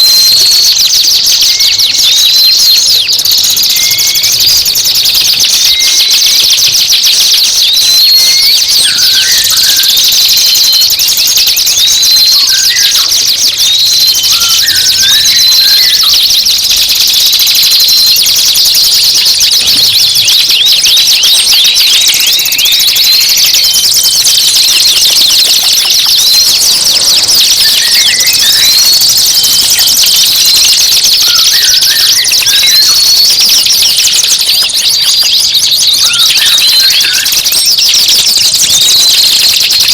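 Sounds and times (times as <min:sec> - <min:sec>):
songbird chatter and trills: 0:00.0 - 0:39.9.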